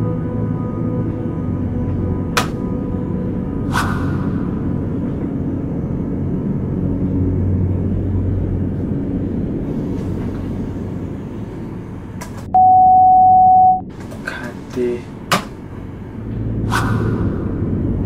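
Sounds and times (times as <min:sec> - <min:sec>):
low rumbling drone: 0:00.0 - 0:18.0
loud electronic beep: 0:12.6 - 0:13.8.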